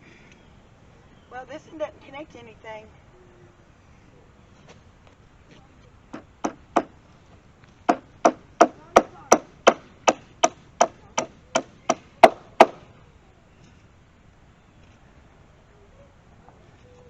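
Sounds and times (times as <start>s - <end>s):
hammer striking: 7.9s - 12.8s.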